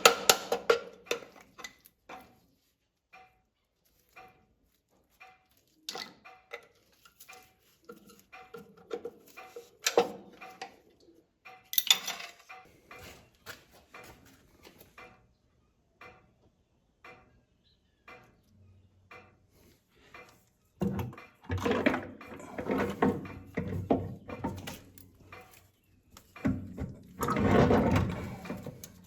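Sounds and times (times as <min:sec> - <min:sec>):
metal tools clinking: 0:11.7 - 0:12.6.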